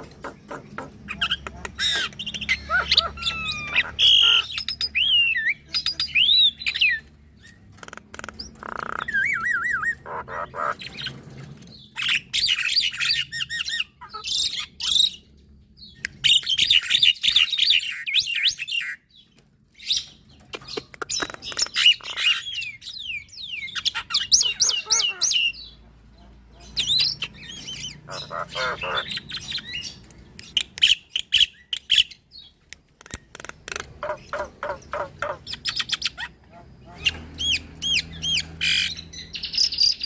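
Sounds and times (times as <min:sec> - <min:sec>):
birds chattering and whistling: 0:00.0 - 0:40.0
bird clicks: 0:20.5 - 0:21.8, 0:32.7 - 0:34.4.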